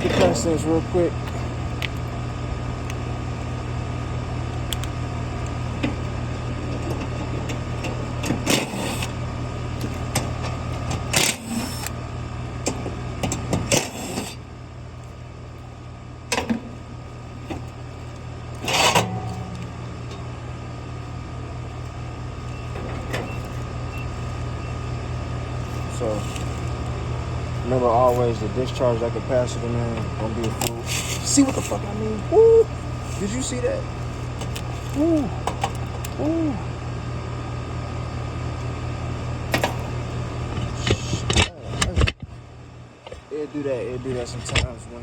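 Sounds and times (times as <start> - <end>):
machinery humming: 0.0 - 45.0
faint high whine: 18.6 - 30.4.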